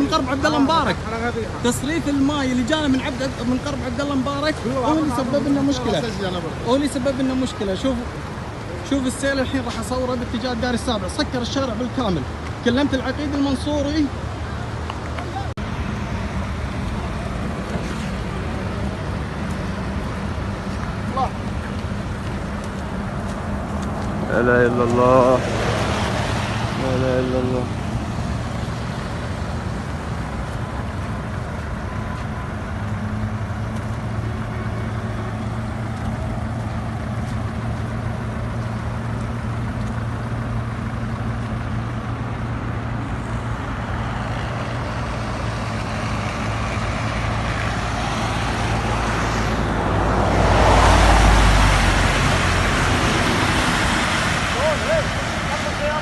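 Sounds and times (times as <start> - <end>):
road and traffic noise: 0.0 - 56.0
vehicle engine running: 14.4 - 56.0.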